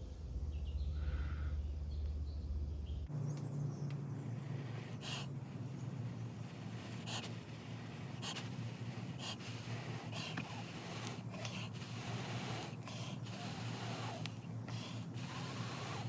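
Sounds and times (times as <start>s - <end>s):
steady low hum: 0.0s - 16.0s
person blowing short breaths: 6.6s - 16.0s.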